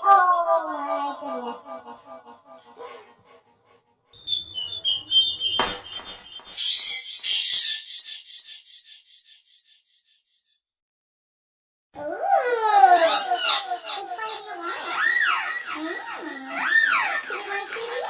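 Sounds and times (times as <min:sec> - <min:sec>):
faint whistle: 0:04.2 - 0:08.6
bird whistled trill: 0:04.2 - 0:09.8.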